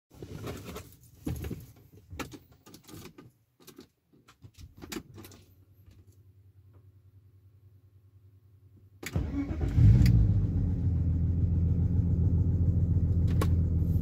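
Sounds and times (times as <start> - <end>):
car engine starting and idling: 9.0 - 14.0.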